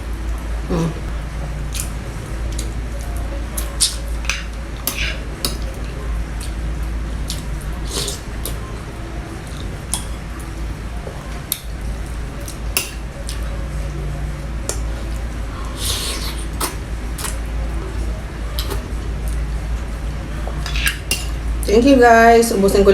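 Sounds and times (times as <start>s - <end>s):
low hum: 0.0s - 22.9s
cutlery scraping a plate: 3.8s - 5.7s, 20.6s - 21.4s.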